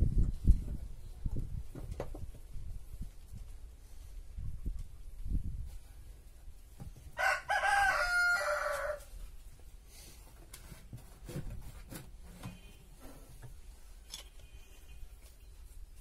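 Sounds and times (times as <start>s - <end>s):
rooster crowing: 7.2s - 9.1s.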